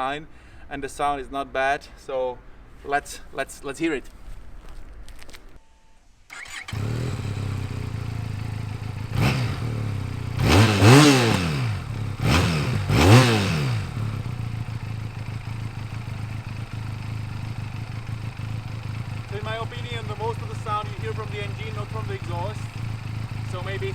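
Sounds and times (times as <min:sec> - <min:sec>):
motorcycle engine idling and revving: 0:06.3 - 0:23.9.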